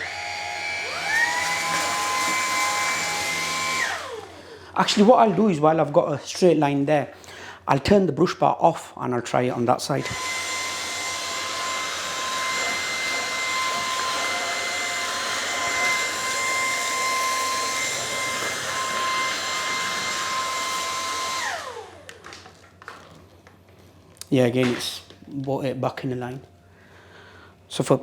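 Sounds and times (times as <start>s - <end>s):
vacuum motor spinning down: 0.0s - 5.4s, 10.0s - 22.3s
stick vacuum running: 0.0s - 5.9s, 10.0s - 23.1s.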